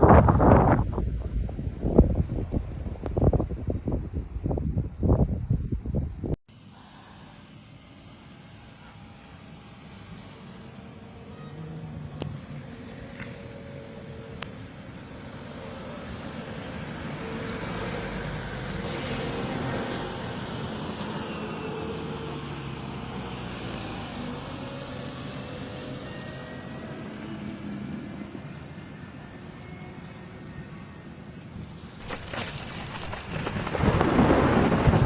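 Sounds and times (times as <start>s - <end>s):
traffic rumble: 9.0s - 35.0s.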